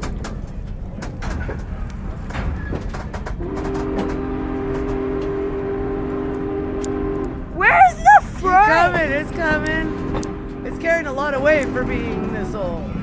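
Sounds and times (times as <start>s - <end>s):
clanks from train wheels: 0.0s - 7.3s, 9.0s - 13.0s
train rumbling on track: 0.0s - 13.0s
locomotive whistle blast: 3.4s - 12.0s.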